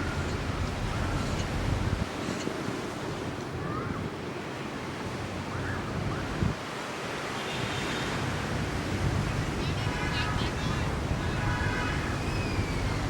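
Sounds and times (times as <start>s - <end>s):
wind on microphone: 0.0s - 4.2s
ocean surf washing ashore: 0.0s - 13.0s.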